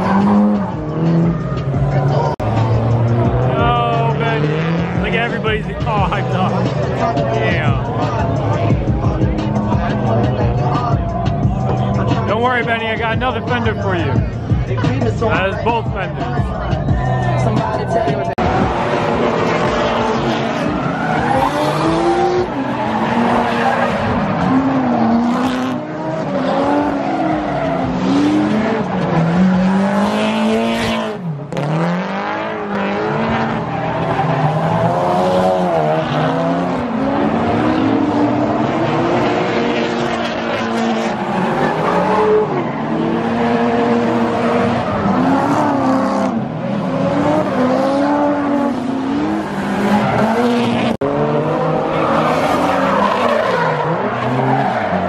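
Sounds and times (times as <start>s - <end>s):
car engines revving: 0.0s - 55.0s
tyres screeching: 19.6s - 29.9s.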